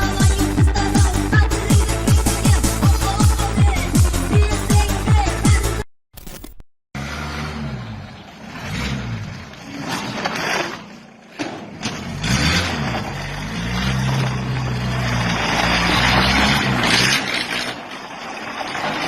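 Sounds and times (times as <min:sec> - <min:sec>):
engine running: 0:07.0 - 0:19.0.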